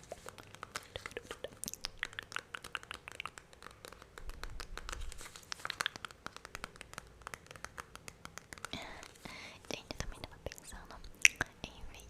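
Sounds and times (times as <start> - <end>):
wet mouth clicks and smacks: 0.0 - 7.6, 9.9 - 11.7.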